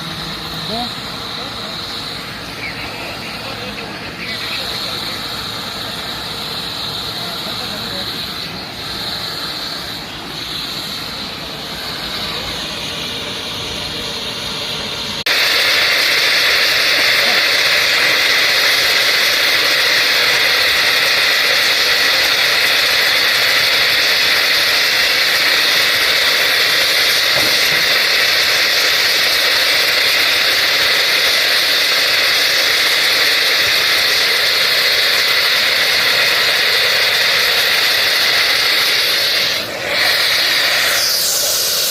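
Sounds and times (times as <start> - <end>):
engine-like rumble: 0.0 - 15.3
hissing roar of welding: 0.0 - 41.9.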